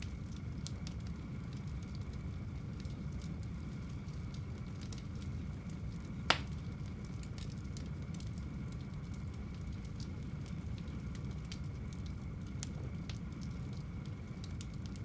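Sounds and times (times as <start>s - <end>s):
fire rumbling: 0.0s - 15.0s
fire crackling: 0.2s - 15.0s
sharp pop of fire: 6.3s - 6.6s.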